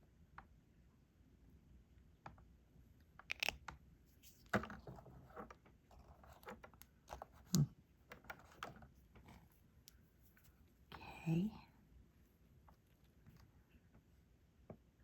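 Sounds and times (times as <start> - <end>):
plastic pen clicks and taps: 3.2 - 3.8.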